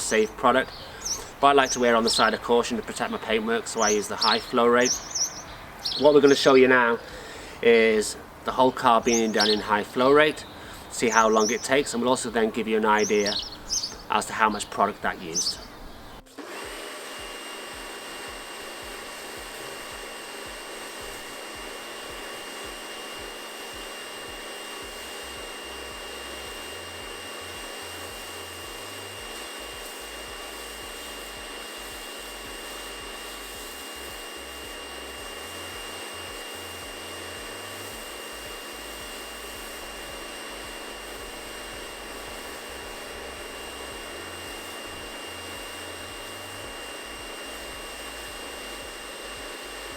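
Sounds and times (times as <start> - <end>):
pressure washer spraying foam: 0.0 - 7.6, 8.8 - 15.6, 16.3 - 49.9.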